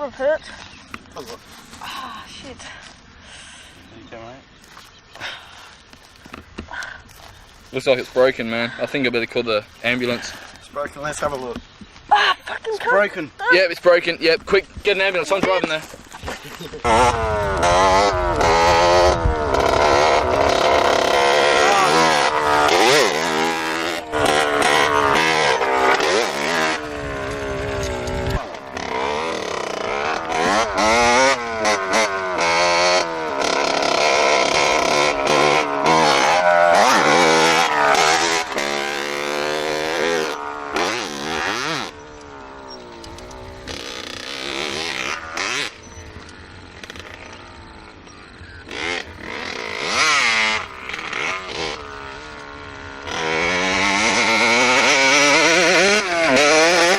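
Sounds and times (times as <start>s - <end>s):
small motorbike engine revving: 15.0s - 56.9s.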